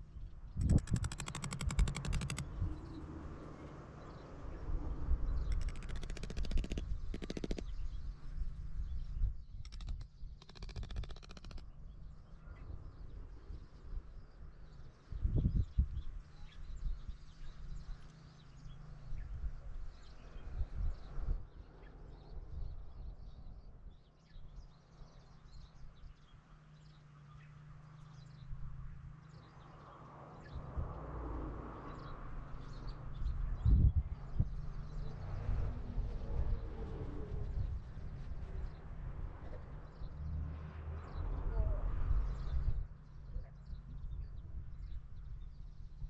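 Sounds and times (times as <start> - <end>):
small birds chirping: 0.0 - 3.1, 4.0 - 28.6
wind buffeting microphone: 0.0 - 3.1, 15.1 - 17.9, 32.7 - 40.2.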